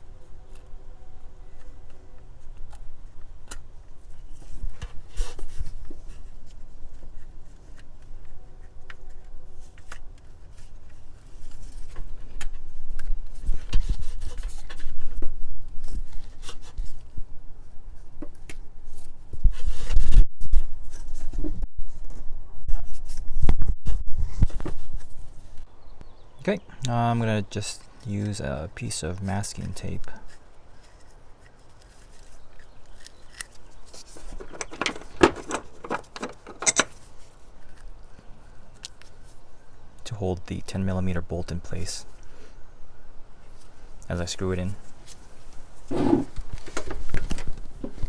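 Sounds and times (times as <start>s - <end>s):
hands and tools rubbing and scraping: 30.2s - 37.8s, 45.0s - 48.0s.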